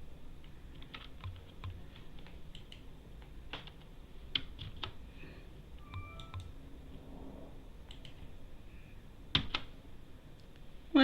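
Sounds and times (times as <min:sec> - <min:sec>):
typing on computer keyboard: 0:00.7 - 0:02.8, 0:03.5 - 0:05.0, 0:05.9 - 0:06.5, 0:09.3 - 0:09.7.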